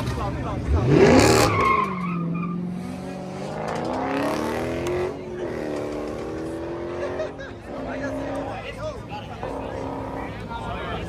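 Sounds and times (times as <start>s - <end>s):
car engine revving hard: 0.0s - 11.0s.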